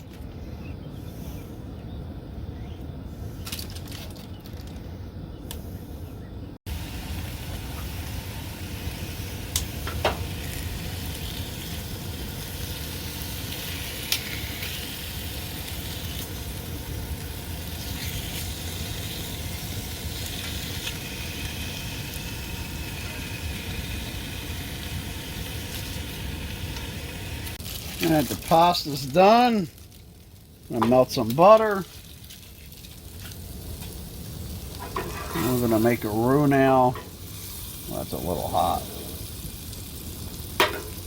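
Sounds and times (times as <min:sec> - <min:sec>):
low stove rumble: 0:00.0 - 0:41.0
food sizzling in a pan: 0:06.7 - 0:41.0.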